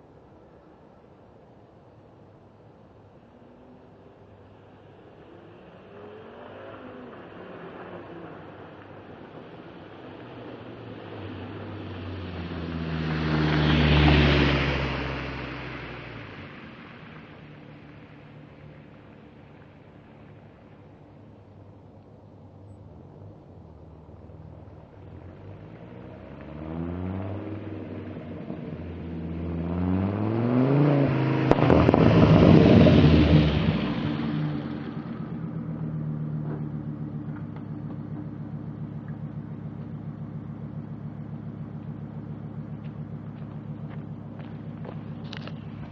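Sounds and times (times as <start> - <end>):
car engine revving: 5.7 - 20.9, 24.8 - 45.9.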